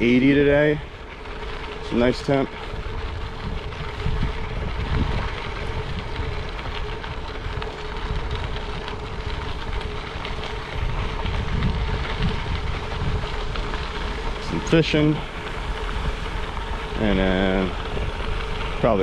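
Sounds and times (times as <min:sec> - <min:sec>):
bicycle tyres rolling on dirt: 0:00.0 - 0:19.0
faint steady hum: 0:00.0 - 0:19.0
wind buffeting microphone: 0:00.0 - 0:19.0.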